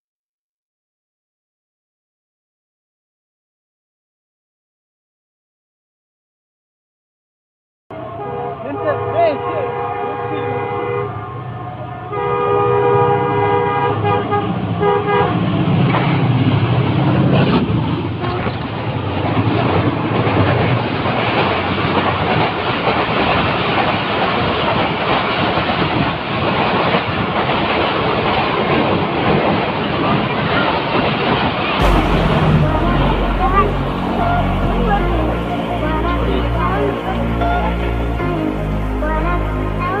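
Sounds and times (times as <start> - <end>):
train horn chord: 7.9 - 15.5, 31.8 - 40.0
moving train running noise: 8.0 - 40.0.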